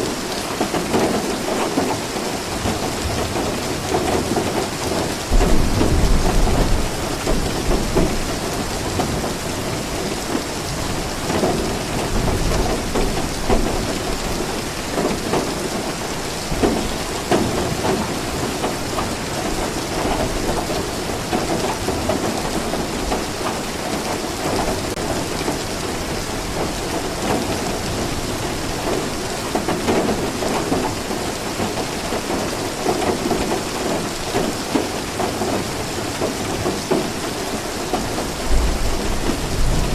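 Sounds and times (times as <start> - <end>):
heavy rain falling: 0.0 - 39.9
low thunder rumble: 5.3 - 14.4, 38.4 - 39.9.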